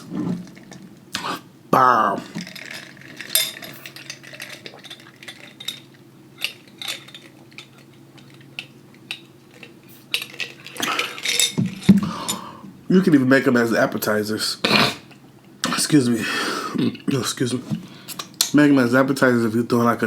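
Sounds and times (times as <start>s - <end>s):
utensil clinking against dish: 2.2s - 12.5s.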